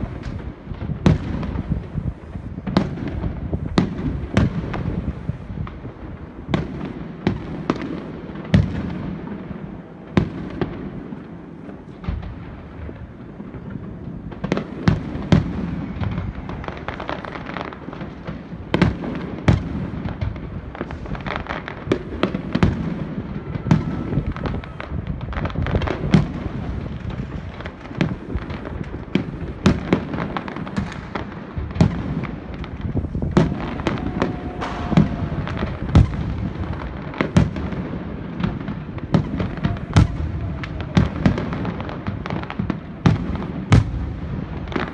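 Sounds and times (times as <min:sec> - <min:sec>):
fireworks rumble and crackle: 0:00.0 - 0:44.9
fireworks shells bursting: 0:32.0 - 0:37.6.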